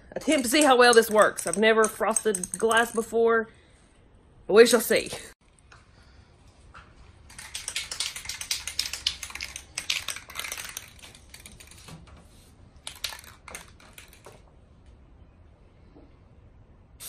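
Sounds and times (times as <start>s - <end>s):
spray can ball rattling: 0.3s - 3.0s, 7.3s - 11.9s, 12.8s - 14.3s.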